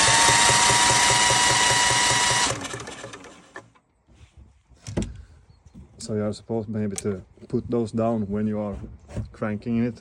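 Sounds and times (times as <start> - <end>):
diesel engine cranking: 0.0 - 3.8.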